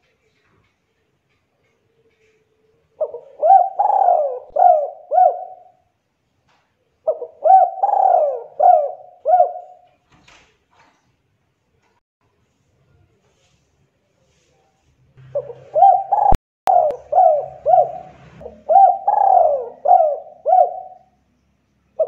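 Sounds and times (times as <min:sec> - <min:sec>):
dove cooing: 0:01.9 - 0:05.8, 0:07.0 - 0:09.8, 0:15.2 - 0:21.2.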